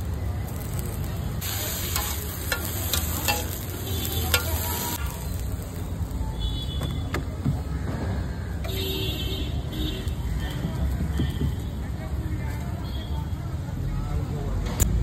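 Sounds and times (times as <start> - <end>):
food sizzling on griddle: 0.0 - 6.7
metal spatula scraping pan: 1.7 - 5.0.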